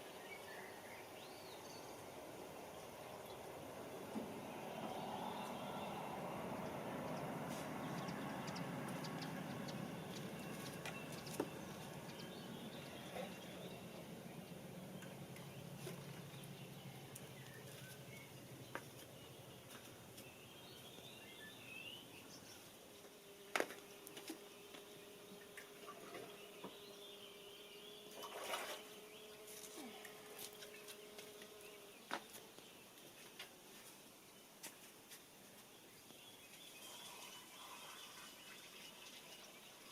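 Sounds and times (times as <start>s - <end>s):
faint bird chirps: 35.9s - 39.8s.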